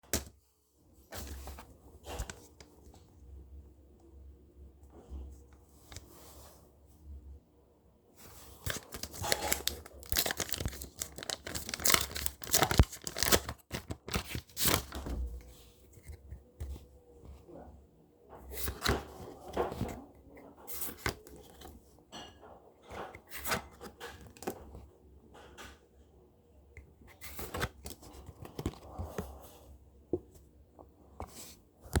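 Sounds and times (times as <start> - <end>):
paper wrapping tearing and crinkling: 8.6 - 15.0.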